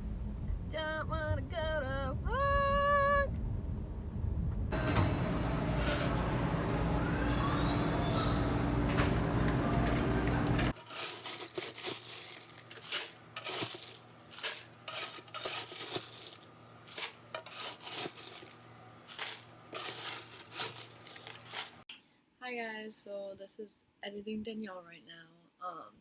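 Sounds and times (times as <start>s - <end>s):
vehicle low drone: 0.0s - 21.7s
crinkling and crackling: 10.6s - 21.9s.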